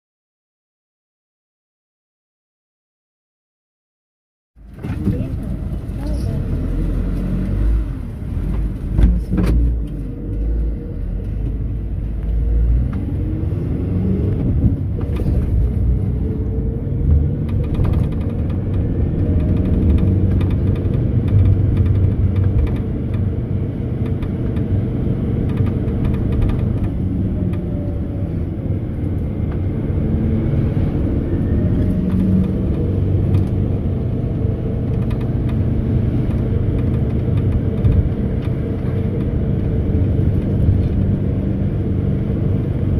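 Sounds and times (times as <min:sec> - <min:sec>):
van engine and road noise: 0:04.6 - 0:42.9.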